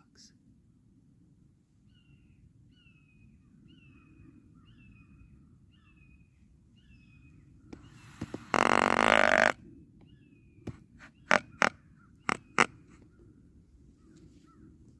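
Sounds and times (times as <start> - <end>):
bird calling: 6.8 - 13.2.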